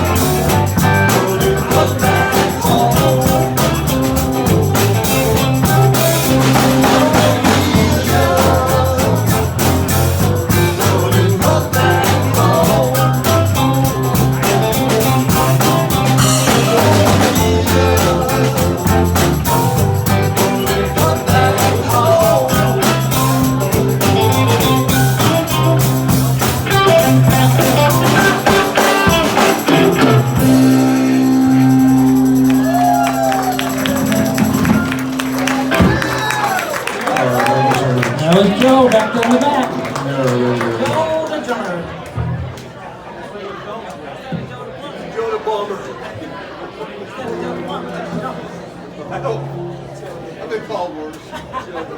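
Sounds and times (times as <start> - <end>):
live rock band playing: 0.0 - 41.0.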